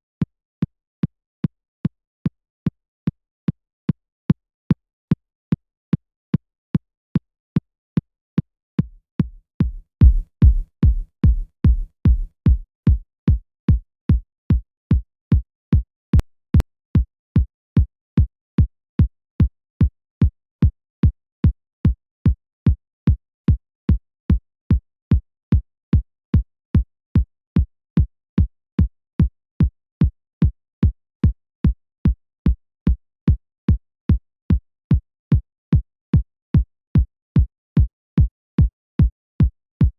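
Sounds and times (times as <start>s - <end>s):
electronic kick drum: 8.8s - 15.0s.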